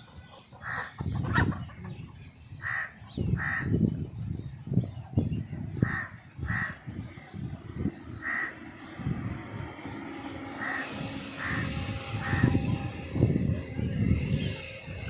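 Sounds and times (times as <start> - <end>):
crow cawing: 5.8 - 6.8, 8.2 - 8.6, 10.6 - 12.6
low rumble: 6.4 - 15.0.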